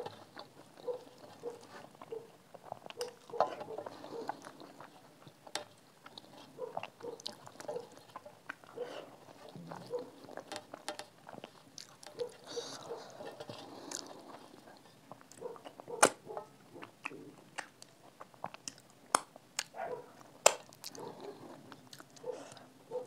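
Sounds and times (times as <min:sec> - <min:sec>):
wet chewing: 0:00.0 - 0:23.0
mouth clicks and smacks: 0:16.8 - 0:19.8.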